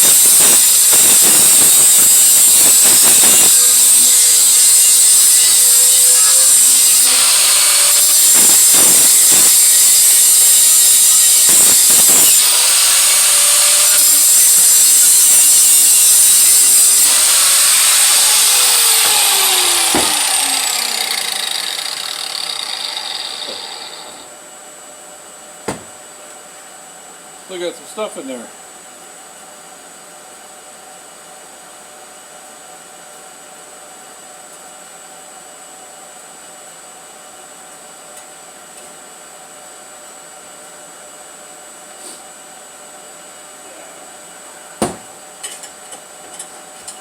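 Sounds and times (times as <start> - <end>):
grinder spinning down whine: 0.0 - 24.3
power grinder grinding metal: 0.0 - 24.3.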